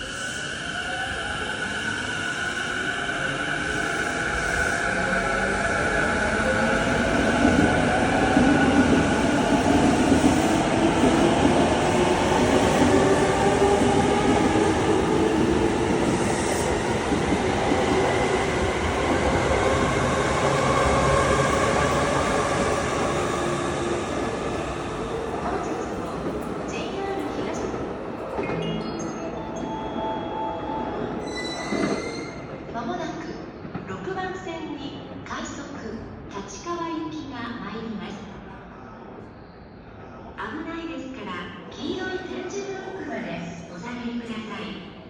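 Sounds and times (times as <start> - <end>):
electric train rumbling: 0.0 - 32.7.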